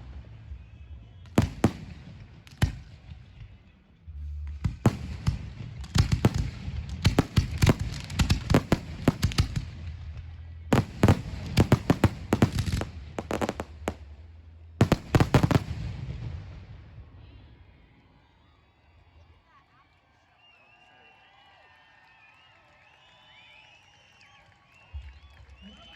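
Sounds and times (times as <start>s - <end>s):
fireworks bursting with sharp bangs: 0.0s - 3.7s, 4.4s - 17.3s.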